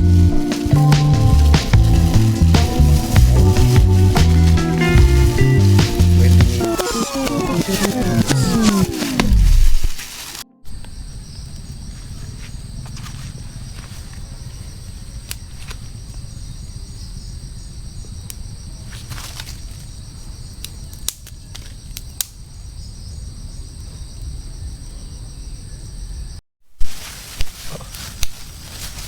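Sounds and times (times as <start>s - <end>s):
low rumbling background: 0.0s - 6.6s
insects chirping chorus: 0.0s - 26.4s.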